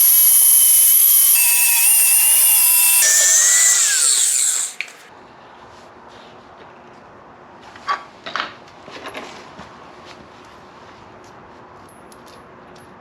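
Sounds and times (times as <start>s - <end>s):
power grinder grinding metal: 0.0s - 5.0s.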